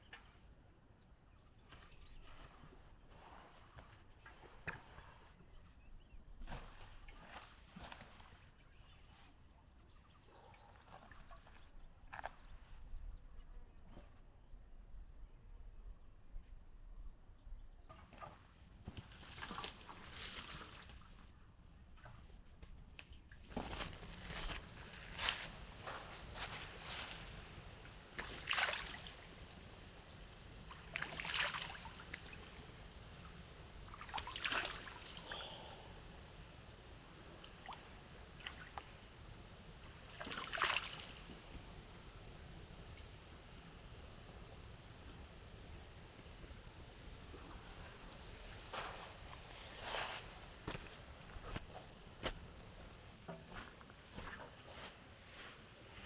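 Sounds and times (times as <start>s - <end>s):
water sloshing: 10.2s - 12.7s, 28.2s - 29.7s, 30.7s - 35.8s, 39.9s - 41.6s.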